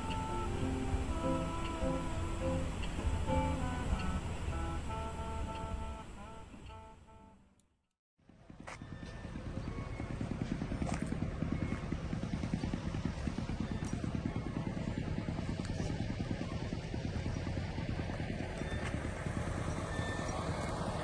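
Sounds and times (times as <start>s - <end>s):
engine running at low revs: 0.0s - 7.4s, 8.2s - 21.0s.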